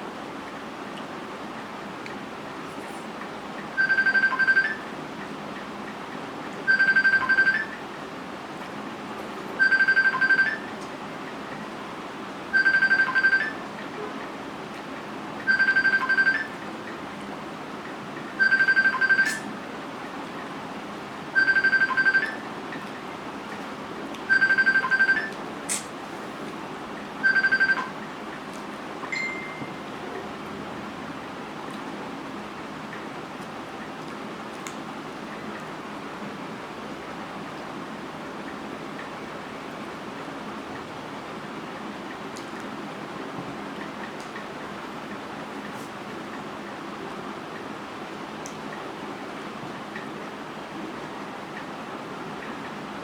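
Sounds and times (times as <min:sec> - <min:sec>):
steady background noise: 0:00.0 - 0:53.0
phone ringing: 0:03.8 - 0:04.9, 0:06.7 - 0:07.8, 0:09.6 - 0:10.7, 0:12.5 - 0:13.7, 0:15.5 - 0:16.6, 0:18.4 - 0:19.5, 0:21.4 - 0:22.5, 0:24.3 - 0:25.4, 0:27.2 - 0:28.0, 0:29.1 - 0:29.8.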